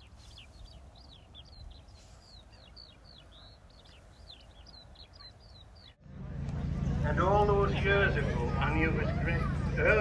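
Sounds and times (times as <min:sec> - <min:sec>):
small bird chirping: 0:00.0 - 0:06.0
faint low outdoor rumble: 0:00.2 - 0:10.0.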